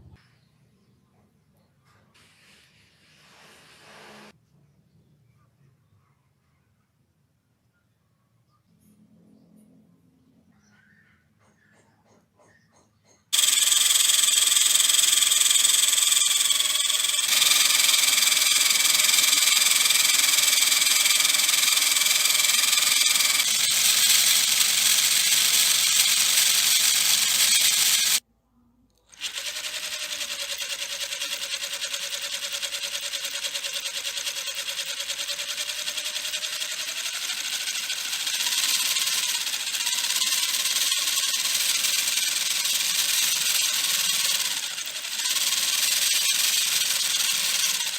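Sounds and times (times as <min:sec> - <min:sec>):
electric motor whining: 0:13.4 - 0:28.2, 0:29.2 - 0:47.9.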